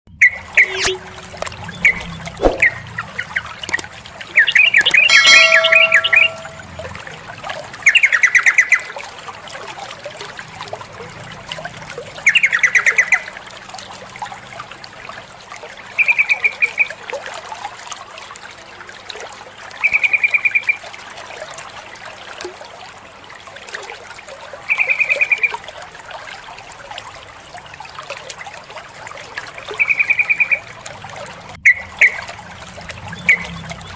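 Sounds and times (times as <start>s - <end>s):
faint trickling water: 0.1s - 33.9s
bird chattering call: 0.6s - 1.2s, 4.5s - 6.6s.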